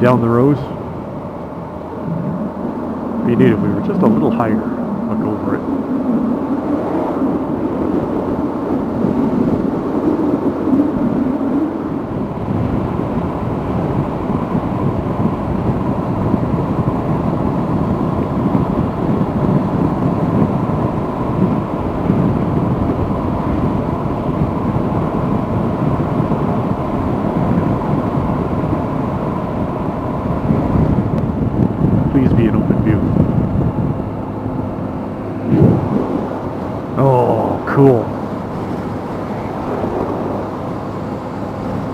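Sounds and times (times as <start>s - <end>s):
motorcycle cruising: 0.0s - 41.9s
wind on microphone: 0.0s - 41.9s.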